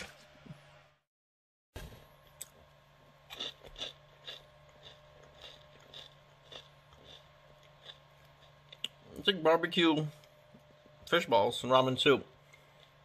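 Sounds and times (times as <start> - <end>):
steady low hum: 1.8 - 13.0
person chewing crispy snack: 2.3 - 9.2.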